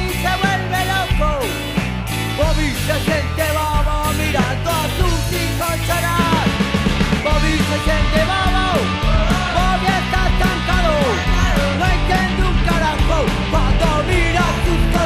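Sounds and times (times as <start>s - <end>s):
bending lead guitar line: 0.0s - 15.0s
punk rock band music: 0.0s - 15.0s.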